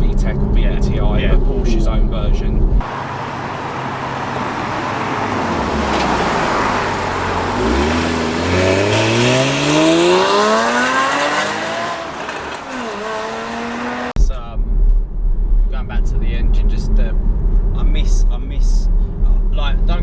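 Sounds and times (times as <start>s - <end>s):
car engine accelerating hard: 2.8s - 14.2s.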